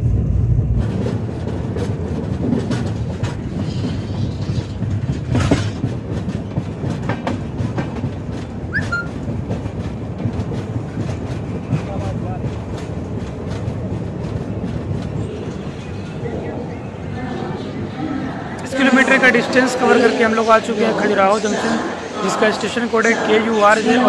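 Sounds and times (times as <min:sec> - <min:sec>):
train wheels clattering on rails: 0:00.0 - 0:17.1
train wheel squeak: 0:03.5 - 0:05.8, 0:08.7 - 0:09.3.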